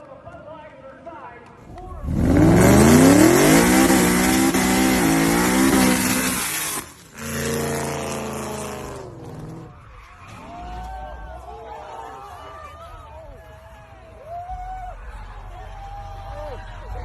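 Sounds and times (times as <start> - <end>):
car engine accelerating hard: 1.8 - 9.8.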